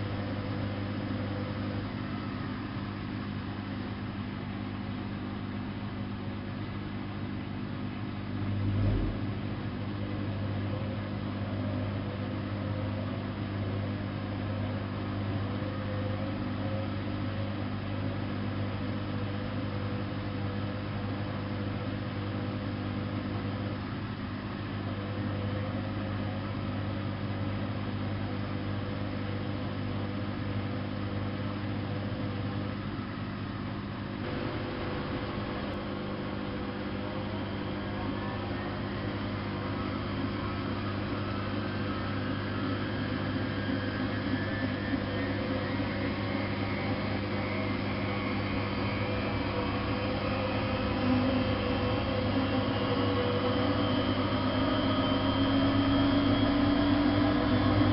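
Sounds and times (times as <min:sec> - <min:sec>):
washing machine running: 0:00.0 - 0:57.9
motor whine rising in pitch: 0:32.0 - 0:57.9.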